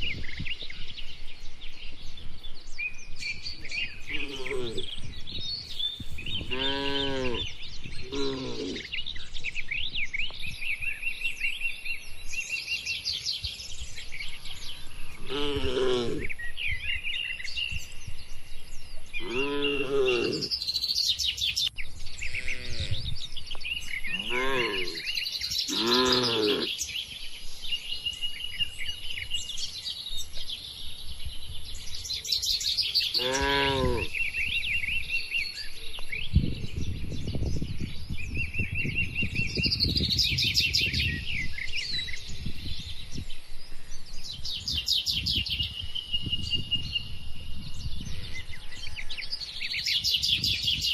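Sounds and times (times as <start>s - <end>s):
small birds chirping: 0.0s - 50.9s
pitched animal calls: 4.1s - 4.9s, 6.4s - 7.4s, 8.0s - 8.9s, 15.2s - 16.3s, 19.2s - 20.5s, 24.1s - 25.1s, 25.7s - 26.7s, 33.1s - 34.1s.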